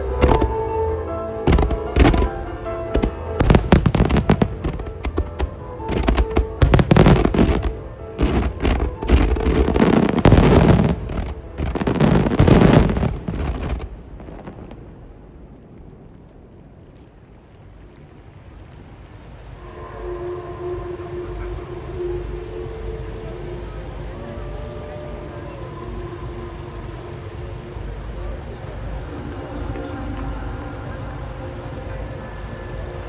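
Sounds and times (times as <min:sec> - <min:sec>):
fireworks bursts booming and crackling: 0:00.0 - 0:15.6.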